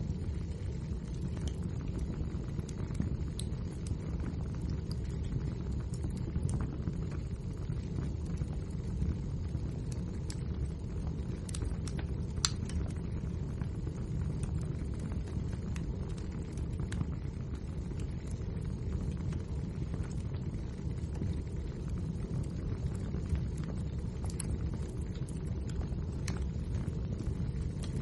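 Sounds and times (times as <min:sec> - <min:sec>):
fire burning with crackles: 0:00.0 - 0:28.0
logs popping and snapping: 0:11.9 - 0:12.8.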